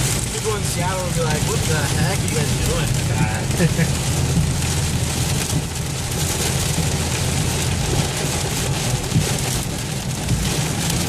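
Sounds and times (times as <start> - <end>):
car engine hum: 0.0 - 11.0
heavy rain pelting a car: 0.0 - 11.0
road noise: 0.0 - 11.0.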